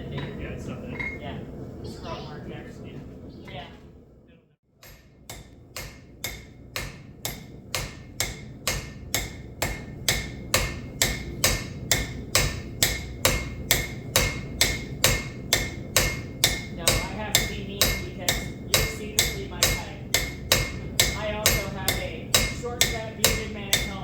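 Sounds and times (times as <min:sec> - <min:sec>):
hammer striking steel on anvil: 0:04.8 - 0:24.0.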